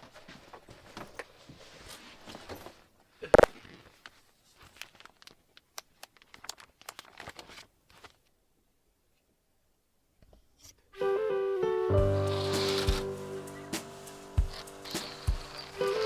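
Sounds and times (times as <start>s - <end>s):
rustling and clicks of handling: 3.4s - 8.4s.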